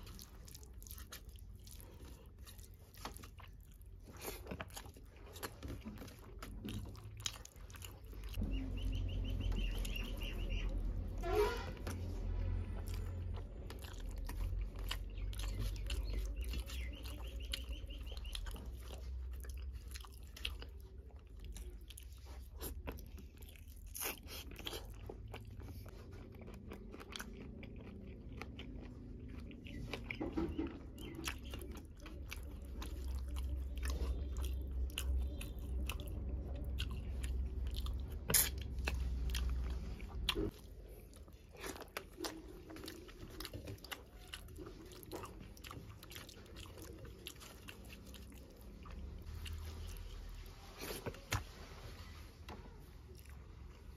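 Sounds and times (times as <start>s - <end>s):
person chewing food: 0.0s - 53.9s.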